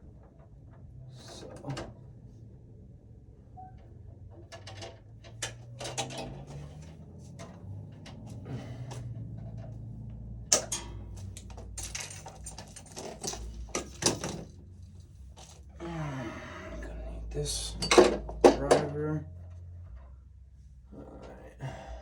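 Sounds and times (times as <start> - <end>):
tools and wiring rattling: 4.2 - 15.8, 17.2 - 20.5.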